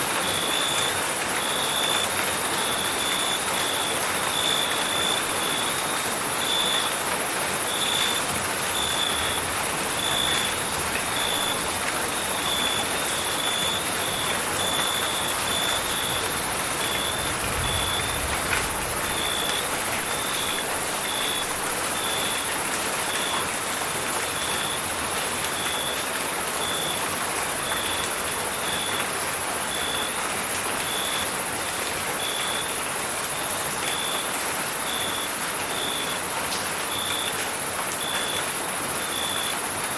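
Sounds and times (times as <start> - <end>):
rain hiss: 0.0 - 39.9
crickets chirping: 10.0 - 18.3, 19.0 - 22.4.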